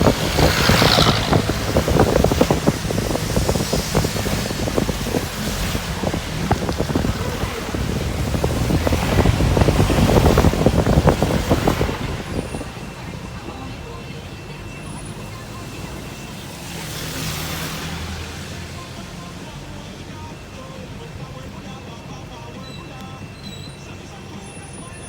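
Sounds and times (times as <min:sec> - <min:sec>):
rain pattering on a car: 0:00.0 - 0:13.3
road and wind rumble: 0:00.0 - 0:25.0.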